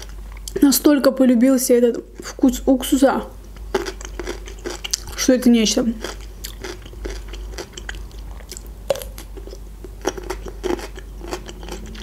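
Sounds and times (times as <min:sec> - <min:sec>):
chewing crunchy pickle: 0:03.5 - 0:12.0.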